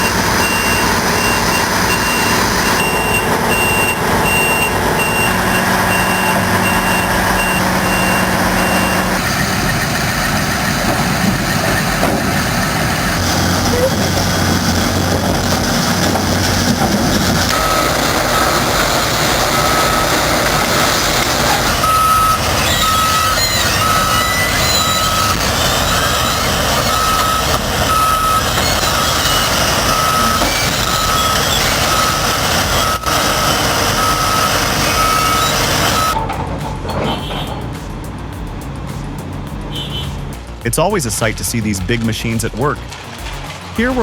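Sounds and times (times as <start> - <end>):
reversing alarm beeping: 0.0 - 14.5, 17.4 - 36.2
heavy machinery engine noise: 0.0 - 44.0.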